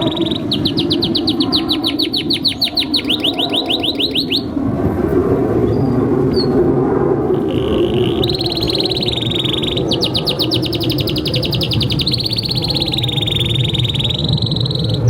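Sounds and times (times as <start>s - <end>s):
canary singing: 0.0s - 4.6s, 7.3s - 15.0s
faint even trill: 7.3s - 13.0s.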